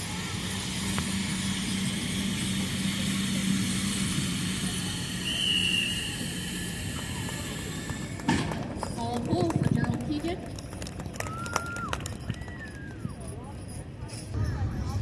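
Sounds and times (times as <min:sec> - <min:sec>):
motor running: 0:00.0 - 0:09.0
outdoor crowd hubbub: 0:00.0 - 0:15.0
brief high squeal: 0:05.2 - 0:06.8.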